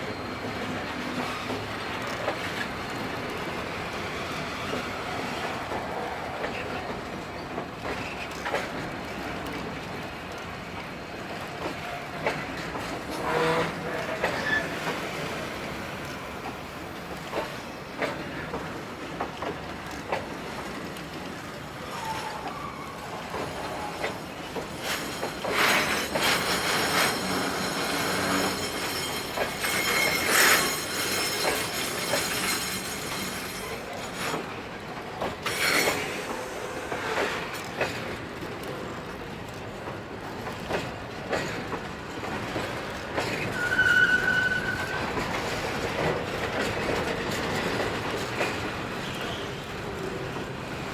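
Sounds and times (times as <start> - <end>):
train wagons rolling: 0.0 - 50.9
high wheel squeals: 13.2 - 15.3, 21.8 - 34.4, 43.4 - 45.6.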